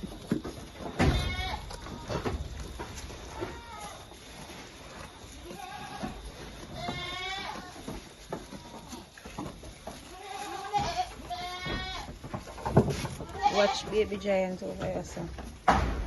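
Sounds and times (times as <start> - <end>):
goats bleating: 1.0 - 2.4, 5.3 - 9.3, 9.9 - 12.2, 13.2 - 14.2.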